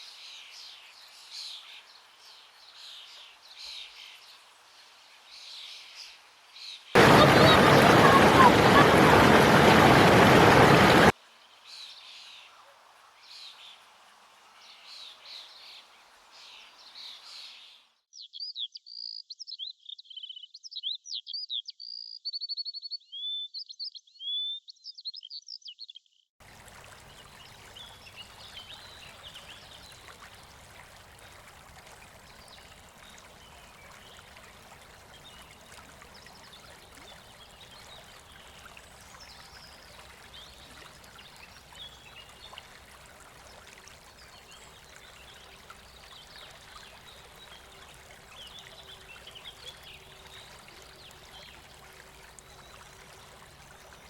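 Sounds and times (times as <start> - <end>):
faint outdoor ambience: 1.9 - 17.6
loud noisy burst: 7.0 - 11.1
faint bird chirps: 17.1 - 26.2
songbird singing trills: 18.2 - 26.1.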